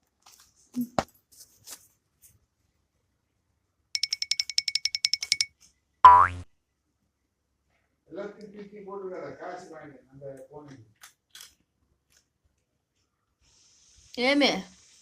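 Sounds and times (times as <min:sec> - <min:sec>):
rapid electronic ringing: 0:04.0 - 0:05.5.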